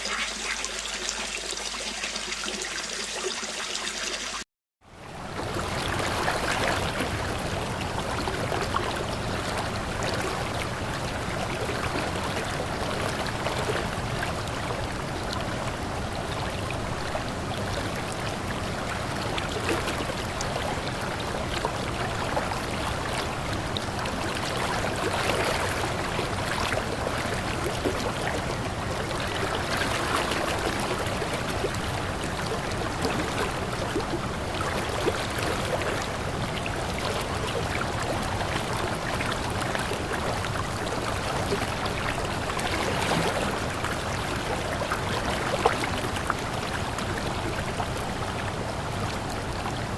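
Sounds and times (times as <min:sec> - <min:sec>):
running water trickling: 0:00.0 - 0:04.4
small water splashes: 0:17.6 - 0:49.8.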